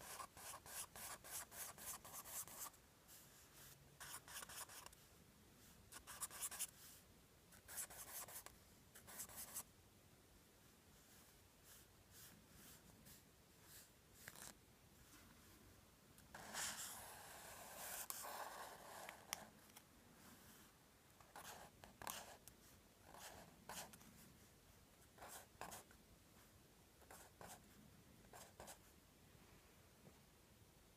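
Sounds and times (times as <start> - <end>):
pencil scratching on paper: 0.0 - 2.8, 3.4 - 5.0, 5.9 - 6.9, 7.6 - 9.7, 16.3 - 19.5, 21.3 - 24.0, 25.2 - 25.9, 27.0 - 27.6, 28.3 - 28.8.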